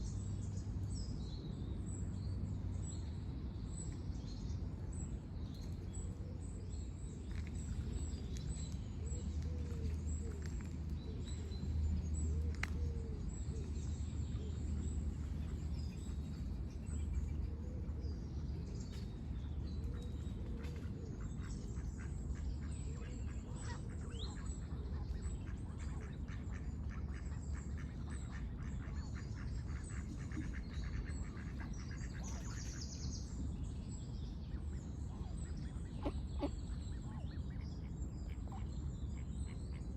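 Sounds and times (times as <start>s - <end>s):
low background rumble: 0.0s - 39.9s
small birds chirping: 29.7s - 39.9s
ducks quacking: 35.9s - 36.7s.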